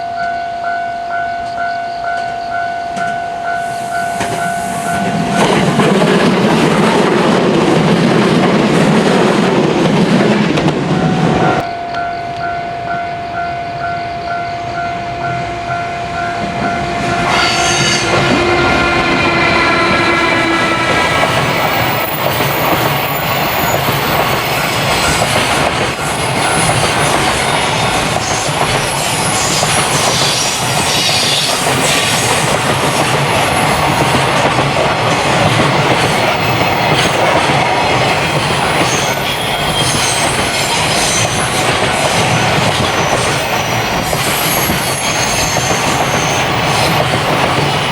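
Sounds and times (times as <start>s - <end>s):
train wheels clattering: 1.4s - 12.4s, 16.3s - 47.9s
train horn: 10.8s - 23.8s
wheel squeal: 17.2s - 34.2s, 38.2s - 47.9s.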